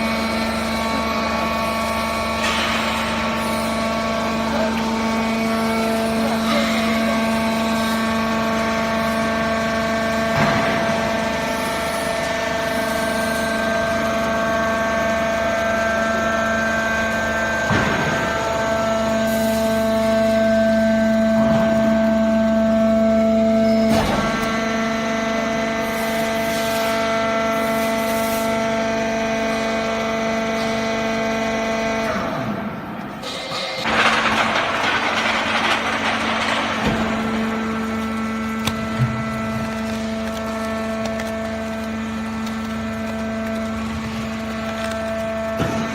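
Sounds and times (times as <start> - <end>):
baler motor and pump humming: 0.0 - 45.9.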